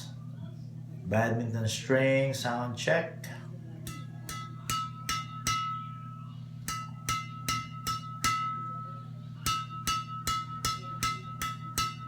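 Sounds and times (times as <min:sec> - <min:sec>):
racket strings pinging: 0:03.8 - 0:12.0.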